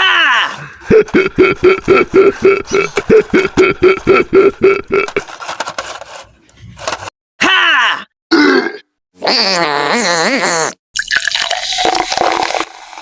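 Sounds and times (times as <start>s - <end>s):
laugh-like voiced pulses: 0.8s - 5.2s.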